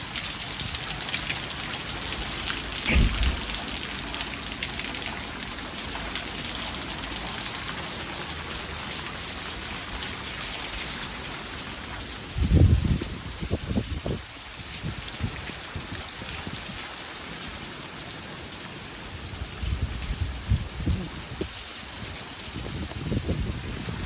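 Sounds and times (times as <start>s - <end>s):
heavy rain hissing: 0.0s - 13.0s, 18.2s - 24.0s
low rumble: 2.9s - 4.0s.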